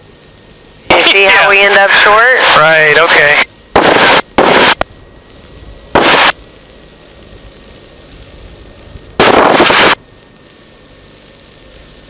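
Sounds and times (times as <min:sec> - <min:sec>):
intercom hiss: 0:00.8 - 0:04.8, 0:05.9 - 0:06.4, 0:09.2 - 0:10.0
harsh clipped noise bursts: 0:02.9 - 0:04.8, 0:05.9 - 0:06.4, 0:09.2 - 0:10.0.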